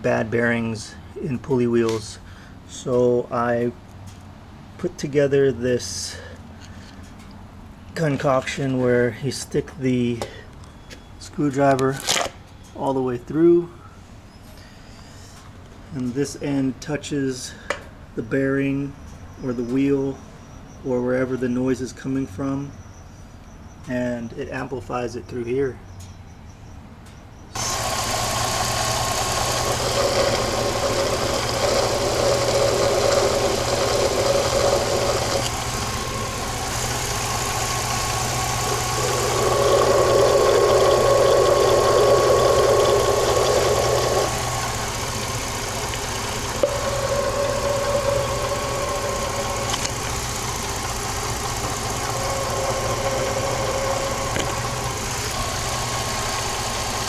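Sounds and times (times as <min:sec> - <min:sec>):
engine idling hum: 0:27.6 - 0:57.0
pulley whir: 0:27.6 - 0:57.0.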